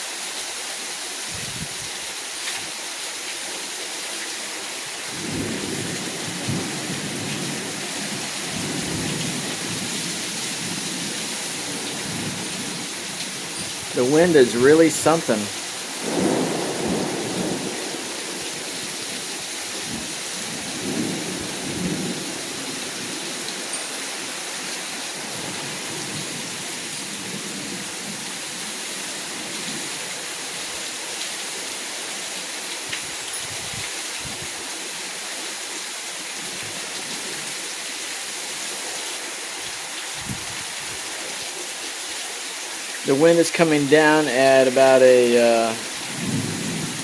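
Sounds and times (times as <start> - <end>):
heavy rain falling: 0.0 - 47.0
gusting wind: 1.3 - 2.0, 5.1 - 28.2, 32.9 - 34.6, 40.2 - 41.0.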